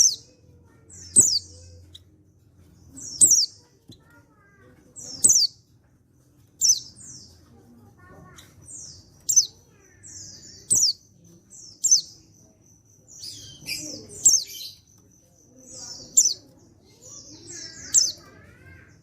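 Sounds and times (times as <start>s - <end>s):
bird sharp high calls: 3.0s - 4.1s, 15.6s - 19.0s.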